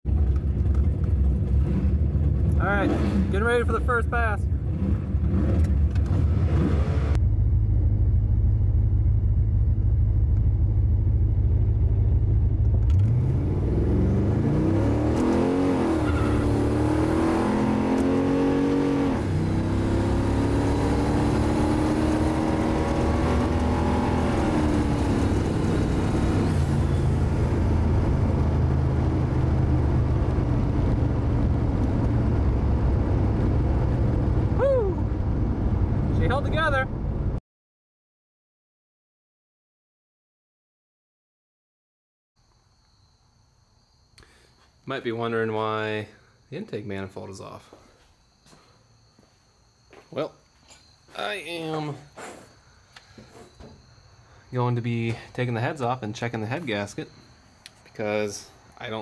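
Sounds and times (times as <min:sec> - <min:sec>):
car engine revving with gear shifts: 0:00.1 - 0:37.4.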